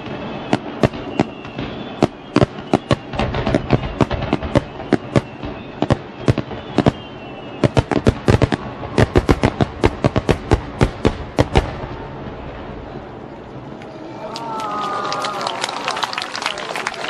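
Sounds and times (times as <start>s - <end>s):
fireworks cracking: 0.0s - 14.0s.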